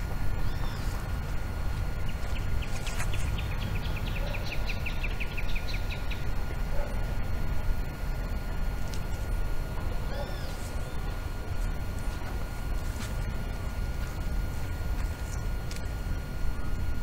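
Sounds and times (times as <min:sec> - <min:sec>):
steady low rumble: 0:00.0 - 0:17.0
bird chirping rapidly: 0:02.0 - 0:06.3.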